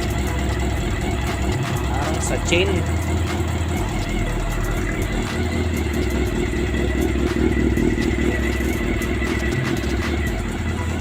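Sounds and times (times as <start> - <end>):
light engine ticking: 0.0 - 11.0
motorcycle engine running: 0.0 - 11.0.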